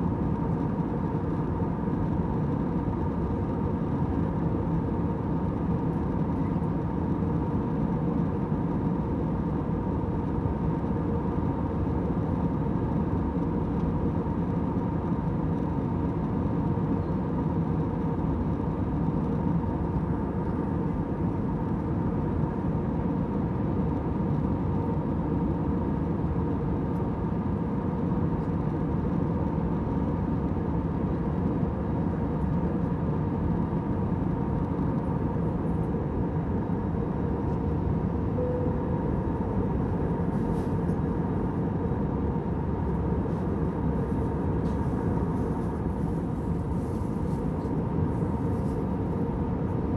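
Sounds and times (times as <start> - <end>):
airliner engine and airflow hum: 0.0 - 49.9
faint steady tones: 38.2 - 41.4.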